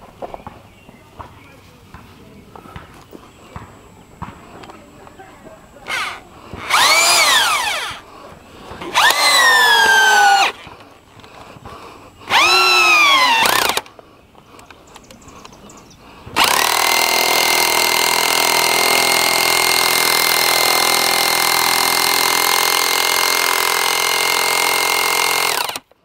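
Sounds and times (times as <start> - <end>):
power drill whining: 5.8 - 8.1, 8.8 - 11.5, 12.2 - 13.9, 16.4 - 25.9.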